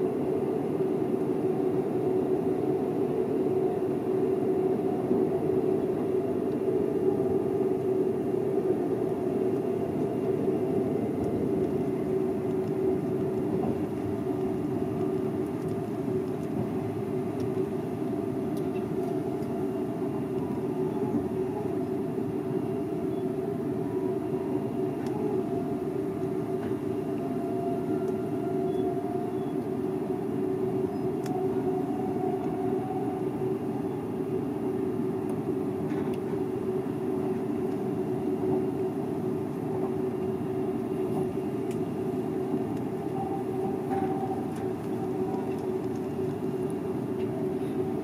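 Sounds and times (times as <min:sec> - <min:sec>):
wheels rumbling on rail: 0:00.0 - 0:48.0
train motor hum: 0:01.2 - 0:48.0.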